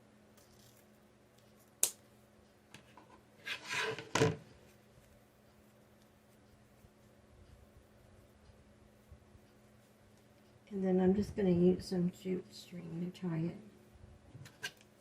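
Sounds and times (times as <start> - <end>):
ribbon rustling: 0.3 - 2.2.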